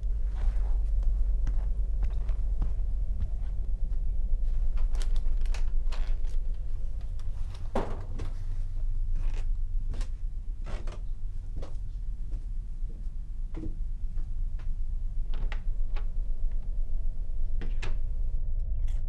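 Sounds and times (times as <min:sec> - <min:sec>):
footsteps: 0:00.0 - 0:05.8
steady low rumble: 0:00.0 - 0:19.0.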